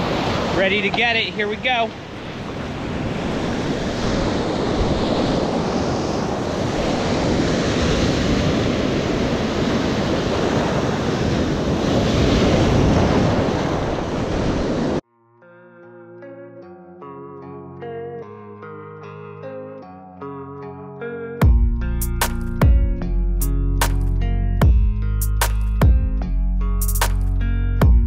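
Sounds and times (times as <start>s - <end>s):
ocean surf and rushing water: 0.0s - 15.0s
wind buffeting microphone: 2.0s - 15.0s.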